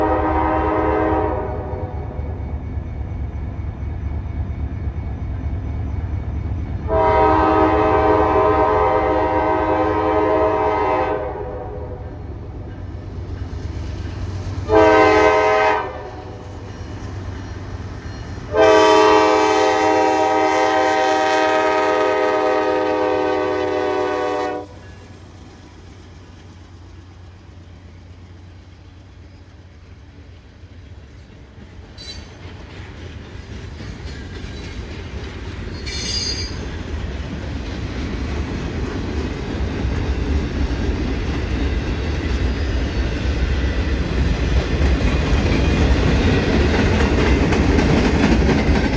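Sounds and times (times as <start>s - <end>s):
locomotive air horn: 0.0s - 2.2s, 6.9s - 12.2s, 14.7s - 16.5s, 18.5s - 25.0s
low rumble of train: 0.0s - 48.9s.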